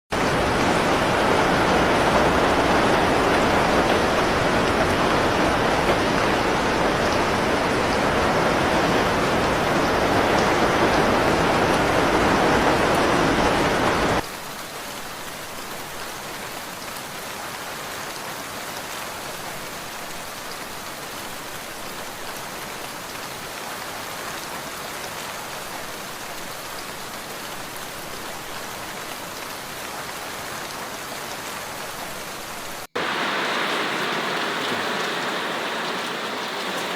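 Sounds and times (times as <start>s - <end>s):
loud rushing water: 0.1s - 14.2s, 32.8s - 36.9s
rain falling: 0.1s - 36.9s.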